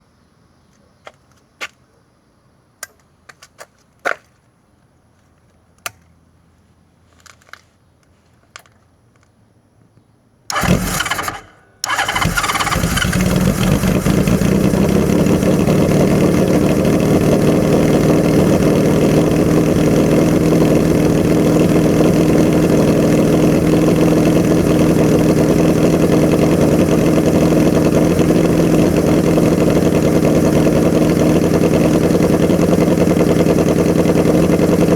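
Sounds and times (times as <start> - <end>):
starter motor cranking: 10.5 - 16.7
motorcycle engine idling: 10.5 - 34.9.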